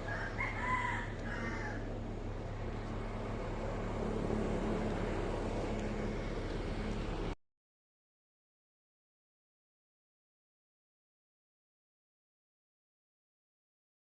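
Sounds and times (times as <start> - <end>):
car engine and tyre drone: 0.0 - 7.4.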